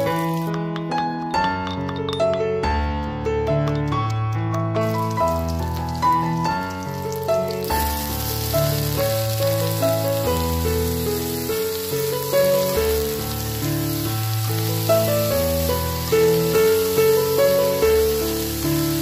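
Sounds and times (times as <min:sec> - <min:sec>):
meat sizzling in a wok: 0:00.0 - 0:00.5, 0:04.8 - 0:19.0
instrumental background music: 0:00.0 - 0:19.0.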